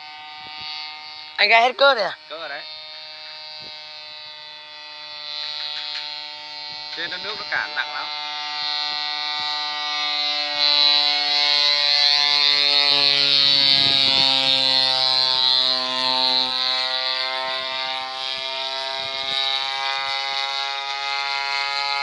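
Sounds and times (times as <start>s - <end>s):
model plane engine buzzing: 0.0s - 22.0s.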